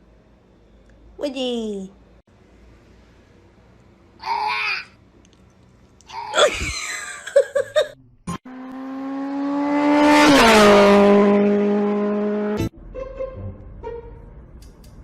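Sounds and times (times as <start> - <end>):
motor vehicle passing by: 8.3 - 15.0.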